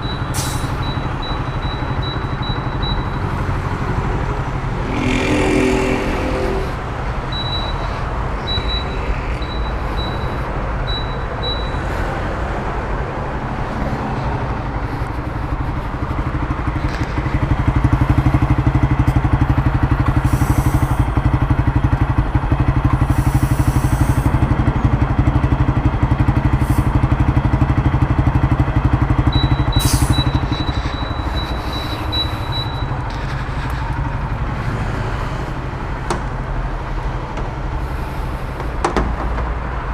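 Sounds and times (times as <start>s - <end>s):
short high beeps: 0.0s - 3.4s, 7.3s - 11.9s, 29.3s - 33.2s
motorcycle engine running: 14.2s - 39.2s.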